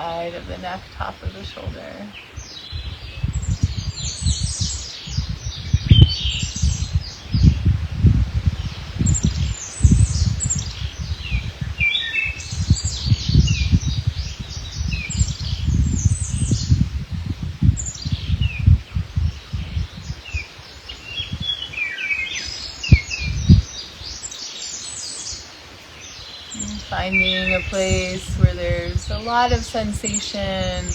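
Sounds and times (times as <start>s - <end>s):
songbirds chirping and singing: 0.0s - 30.9s.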